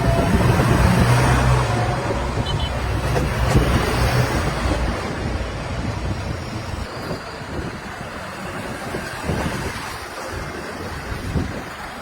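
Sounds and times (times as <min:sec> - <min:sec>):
heavy machinery diesel engine rumbling: 0:00.0 - 0:09.3.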